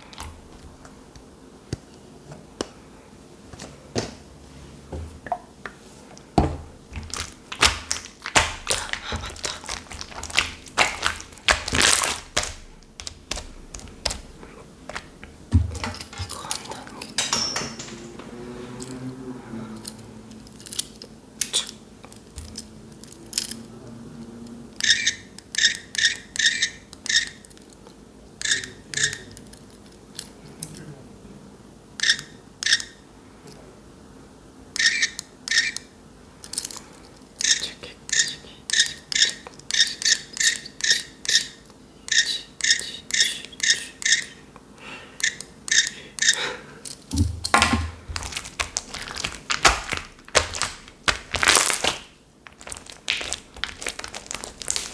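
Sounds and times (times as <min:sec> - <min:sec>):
slime wet clicking pops: 0:07.0 - 0:15.1.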